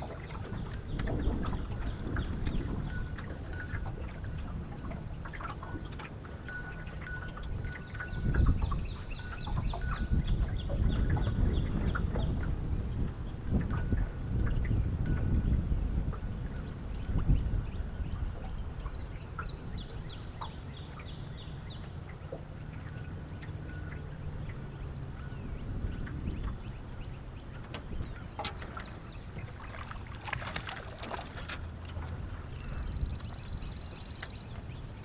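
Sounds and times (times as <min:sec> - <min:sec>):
wind and water rumble: 0:00.0 - 0:35.0.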